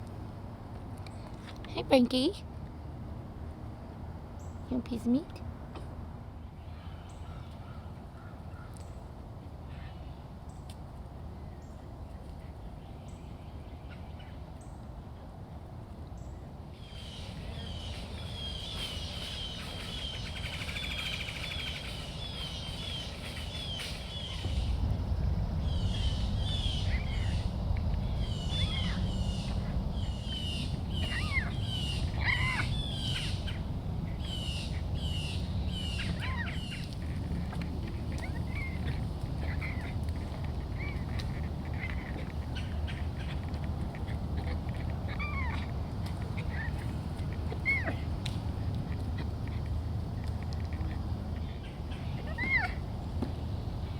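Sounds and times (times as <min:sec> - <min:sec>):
low rumble: 0:24.3 - 0:50.0
bobcat chirping: 0:25.7 - 0:52.8.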